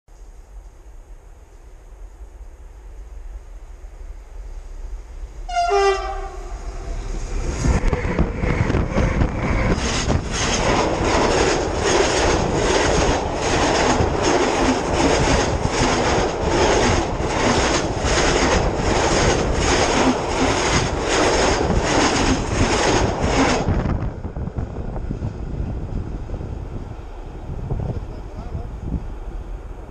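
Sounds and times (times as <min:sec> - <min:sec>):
train wheels rumbling: 0:00.2 - 0:29.9
train horn blast: 0:05.4 - 0:09.8.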